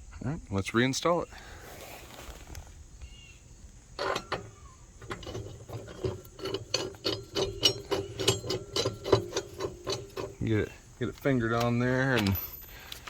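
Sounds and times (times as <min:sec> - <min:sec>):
metallic clicking of mower blade: 0:04.0 - 0:13.0.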